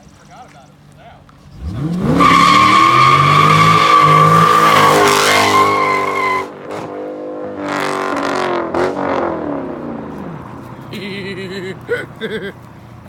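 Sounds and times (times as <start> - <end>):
car engine revving: 1.5 - 11.3
tyres squealing: 1.6 - 6.5.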